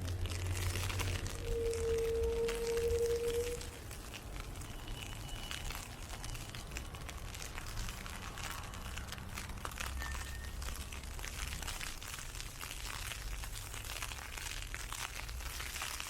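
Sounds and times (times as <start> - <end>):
low rumble: 0.0 - 4.7
ice pellets hitting umbrella: 0.0 - 16.0.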